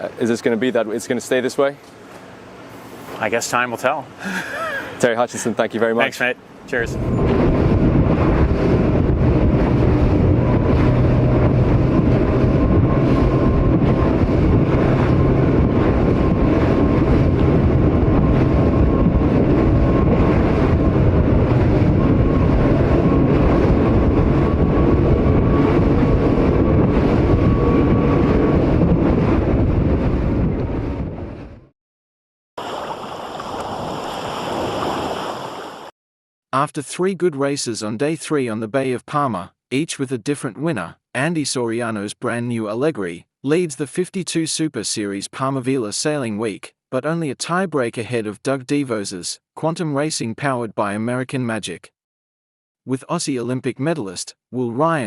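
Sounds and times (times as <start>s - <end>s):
water noise from fast boat: 0.0s - 29.4s, 32.6s - 35.9s
wind on microphone: 6.7s - 31.7s.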